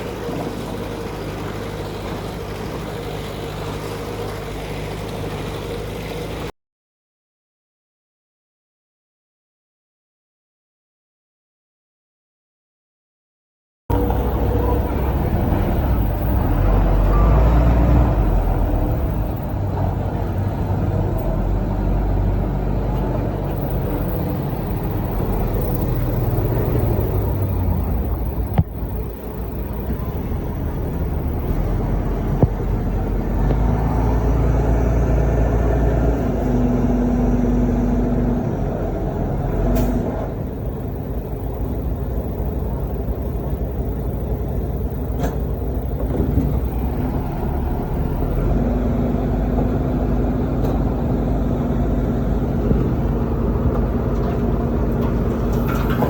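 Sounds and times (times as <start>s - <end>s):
heavy machinery engine rumble: 0.0s - 6.5s, 13.9s - 56.0s.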